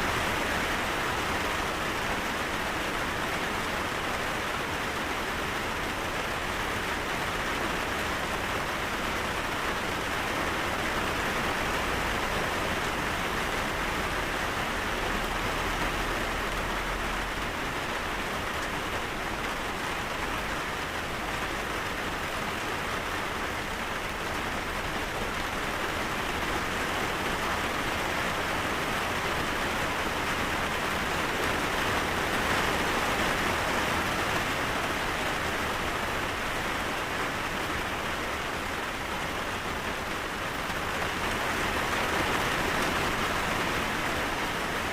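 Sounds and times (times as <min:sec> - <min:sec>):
rain pattering: 0:00.0 - 0:44.9.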